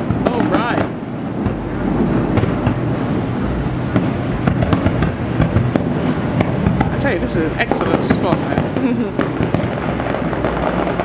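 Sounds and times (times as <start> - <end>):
fireworks booming: 0.0 - 11.0
fireworks cracking and crackling: 2.4 - 11.0.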